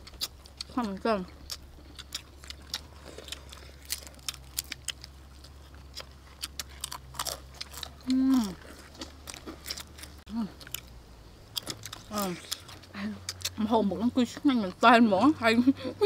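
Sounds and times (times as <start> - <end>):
crunching and chewing fried chicken: 0.0 - 13.6
woman vocal sound: 8.0 - 8.7, 10.3 - 10.6.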